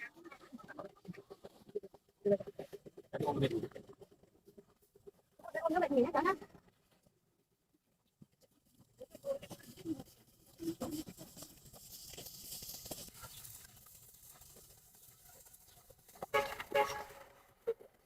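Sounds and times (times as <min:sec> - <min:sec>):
dry rice stalks rustling and snapping: 0:10.8 - 0:17.1.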